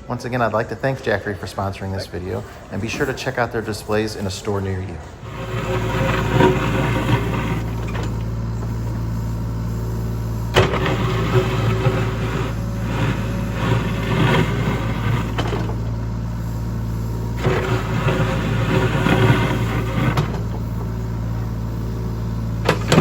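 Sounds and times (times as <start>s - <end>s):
earthmoving machine engine running: 5.0s - 23.0s
rattling scraping noise: 5.2s - 8.9s, 10.5s - 16.0s, 17.3s - 20.9s, 22.6s - 23.0s.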